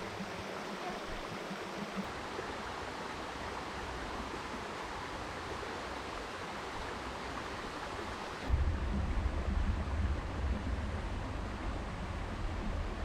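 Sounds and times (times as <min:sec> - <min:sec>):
river water rushing: 0:00.0 - 0:08.6.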